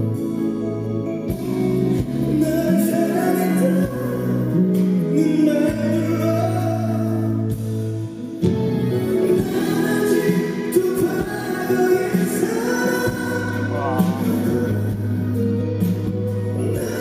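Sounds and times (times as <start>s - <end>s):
live band accompaniment: 0.0s - 17.0s
person singing long notes: 9.0s - 15.2s.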